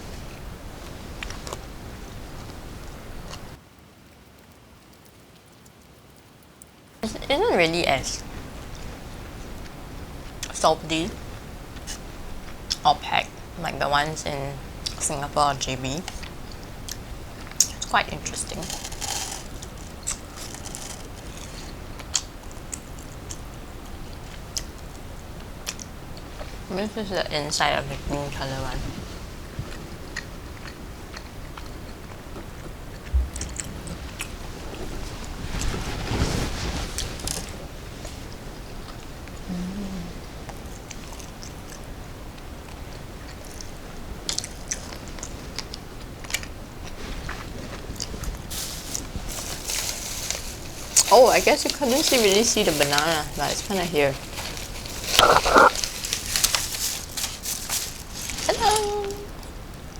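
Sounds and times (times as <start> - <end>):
low steady hum: 0.0 - 3.6, 7.0 - 59.9
crisp snack crunching: 16.1 - 24.8, 42.7 - 59.6
person chewing crunchy snack: 18.6 - 23.4, 54.6 - 58.7.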